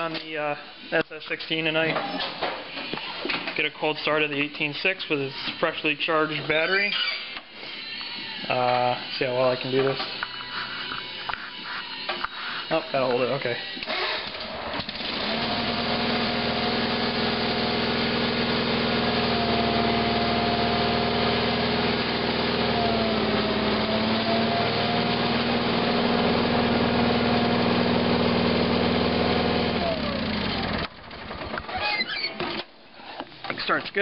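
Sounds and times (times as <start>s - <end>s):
engine running: 13.8s - 31.6s.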